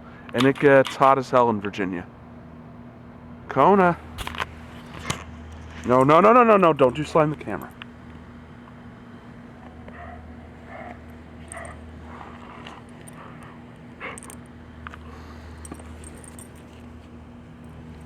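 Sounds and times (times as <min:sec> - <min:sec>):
steady low hum: 0:00.0 - 0:18.0
dog sniffing and snuffling: 0:09.5 - 0:17.2.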